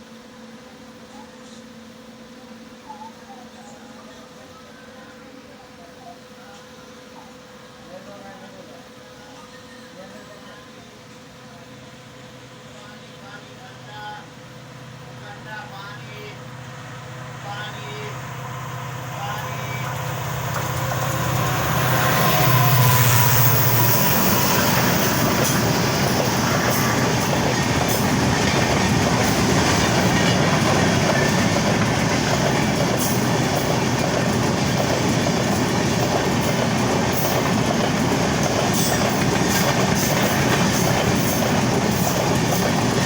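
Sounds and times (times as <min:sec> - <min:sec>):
train wheels rumbling on rail: 0:13.9 - 0:43.0
locomotive low hum: 0:14.3 - 0:43.0
wheels clattering over rail joints: 0:19.6 - 0:43.0.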